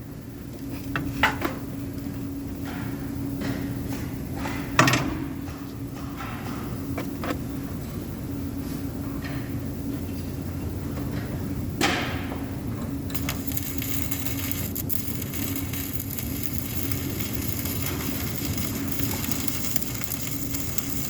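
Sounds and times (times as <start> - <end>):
steady hum: 0.0 - 21.0
welding arc crackling: 13.0 - 21.0.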